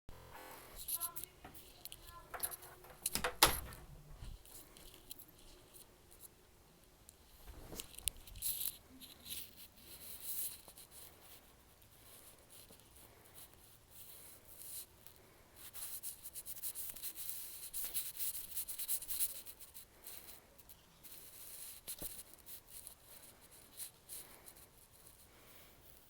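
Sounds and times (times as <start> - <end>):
soft clicks and crackles: 0.8 - 13.6.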